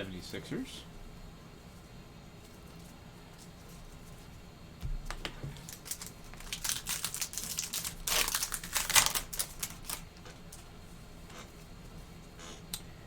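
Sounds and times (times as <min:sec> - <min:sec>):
cards being handled: 0:05.1 - 0:10.0
card pack wrapper crinkling: 0:05.6 - 0:10.1.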